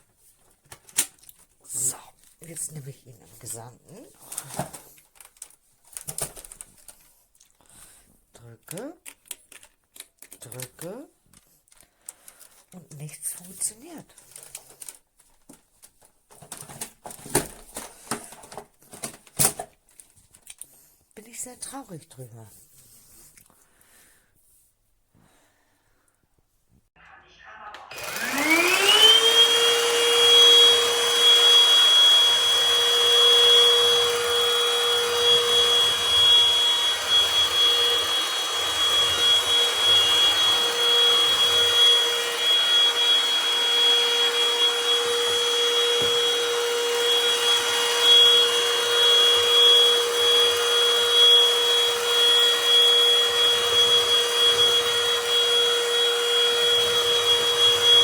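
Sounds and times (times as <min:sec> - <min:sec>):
vacuum cleaner motor whining: 0:27.9 - 0:58.0.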